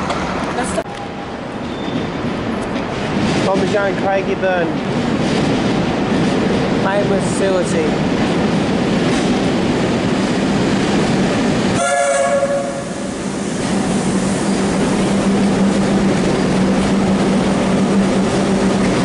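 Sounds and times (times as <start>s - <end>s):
train wheels on rails: 0.0s - 19.0s
train horn blast: 11.8s - 13.1s.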